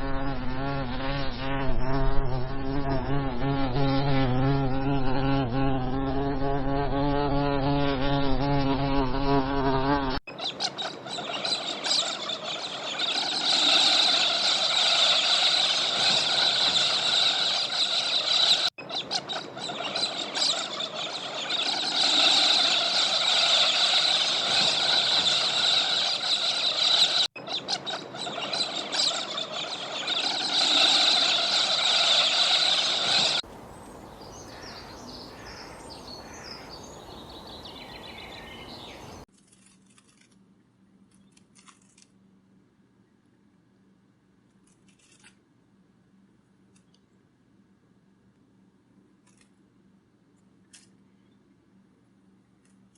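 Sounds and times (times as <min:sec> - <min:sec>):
fly buzzing: 0:00.0 - 0:10.2, 0:11.6 - 0:18.8, 0:19.8 - 0:27.3, 0:27.9 - 0:33.4
faint bird chirps: 0:10.3 - 0:39.3
high insect drone: 0:11.7 - 0:18.7, 0:20.0 - 0:27.3, 0:28.4 - 0:33.4.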